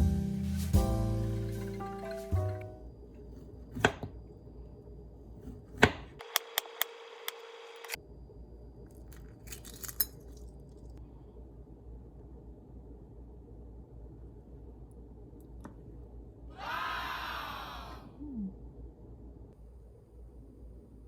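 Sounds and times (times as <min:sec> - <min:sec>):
music: 0:00.0 - 0:02.9.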